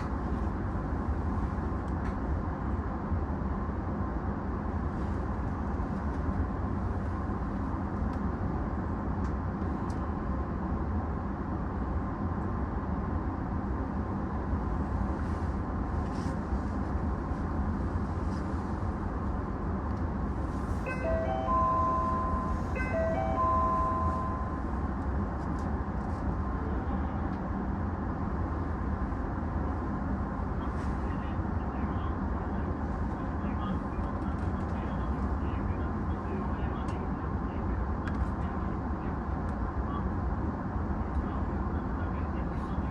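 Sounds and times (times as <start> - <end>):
electric train humming: 20.4 - 25.3
electronic tone pattern: 20.9 - 24.7.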